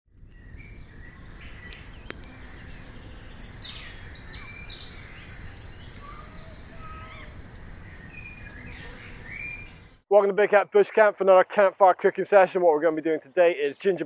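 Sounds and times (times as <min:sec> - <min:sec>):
birds singing and chirping: 0:00.2 - 0:10.0, 0:12.8 - 0:14.0
low outdoor rumble: 0:04.8 - 0:10.0.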